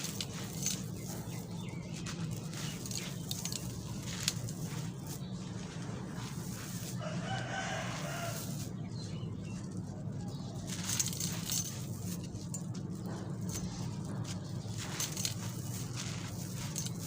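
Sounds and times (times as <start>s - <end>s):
concrete crunching: 0.0s - 17.0s
rooster crowing: 6.9s - 8.7s.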